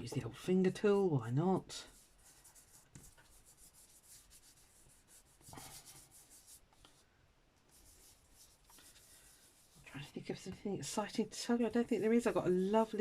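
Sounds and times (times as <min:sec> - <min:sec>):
fingertip rubbing paper: 0:01.9 - 0:07.0, 0:07.7 - 0:10.1, 0:11.6 - 0:13.0.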